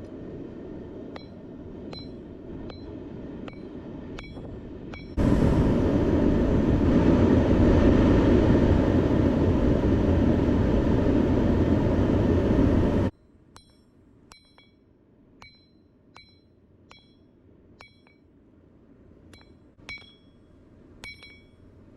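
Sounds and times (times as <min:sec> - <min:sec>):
loud rushing roar: 0:00.0 - 0:13.1.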